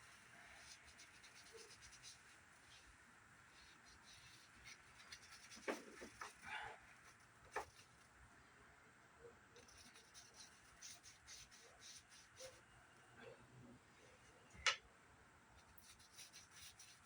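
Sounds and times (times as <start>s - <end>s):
wipe scrubbing plastic casing: 3.6s - 7.9s.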